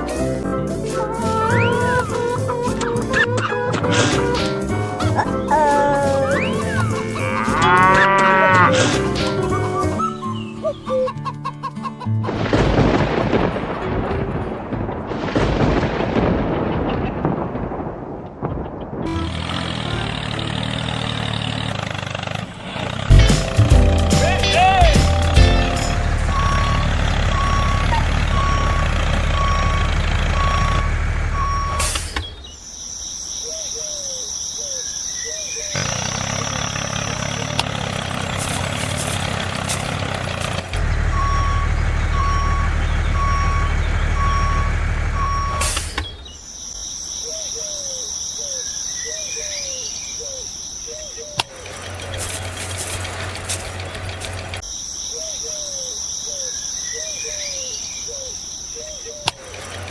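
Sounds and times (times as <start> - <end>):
low engine rumble: 19.1 - 32.0, 35.8 - 45.8
reversing alarm beeping: 25.0 - 32.0, 40.8 - 46.0.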